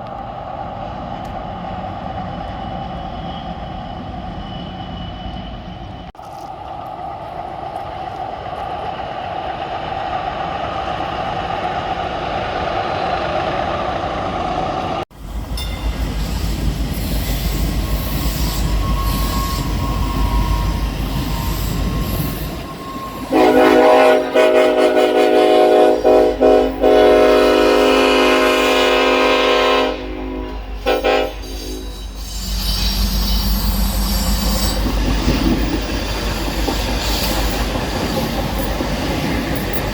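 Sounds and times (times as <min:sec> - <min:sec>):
train rumbling: 0:00.0 - 0:39.9
high squeal: 0:01.9 - 0:06.2, 0:15.6 - 0:23.8, 0:30.6 - 0:38.8
train horn blasts: 0:23.0 - 0:32.0.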